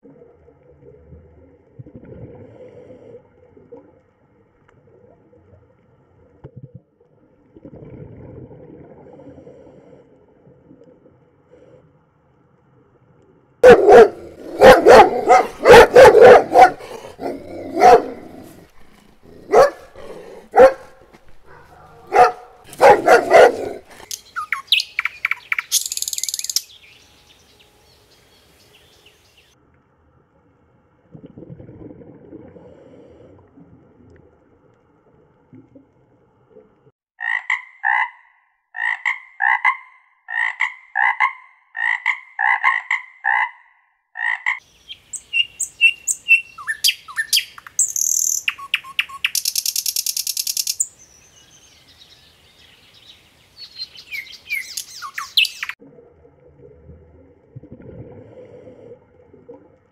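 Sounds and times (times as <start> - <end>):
frog croaking: 37.2 - 44.6.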